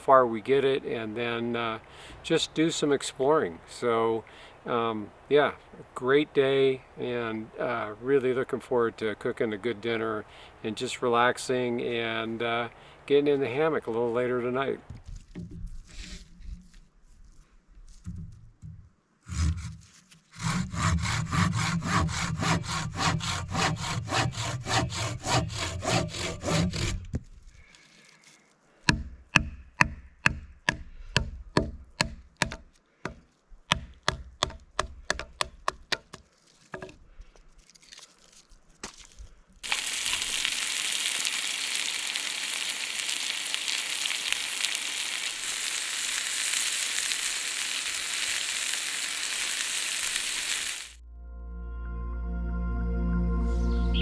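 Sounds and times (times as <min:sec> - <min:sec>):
saw rasping through firewood: 0:19.3 - 0:27.1
food sizzling in a pan: 0:39.6 - 0:51.0.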